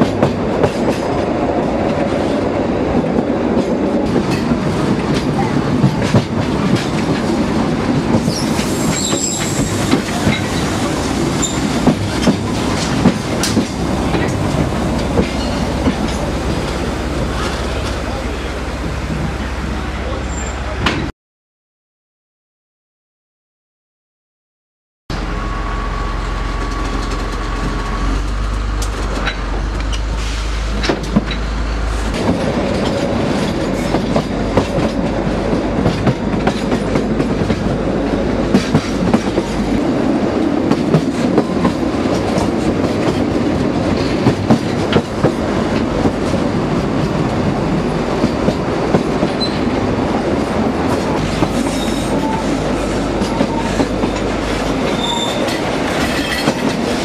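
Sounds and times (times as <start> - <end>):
train wheels clicking over rail joints: 3.1 - 18.0, 26.5 - 49.8, 50.4 - 57.0
faint wheel squeal: 8.3 - 9.7, 20.3 - 20.7, 54.9 - 55.5.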